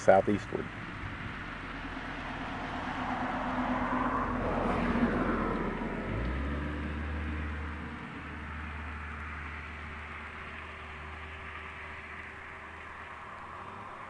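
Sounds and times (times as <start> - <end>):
steady outdoor hiss: 0.0 - 4.5, 5.5 - 14.0
vehicle engine rumble: 0.0 - 14.0.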